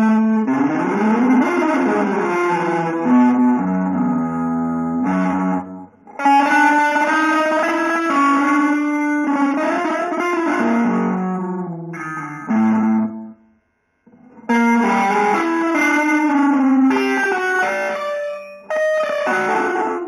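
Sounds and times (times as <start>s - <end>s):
electric guitar melody: 0.0s - 13.5s, 14.1s - 20.0s.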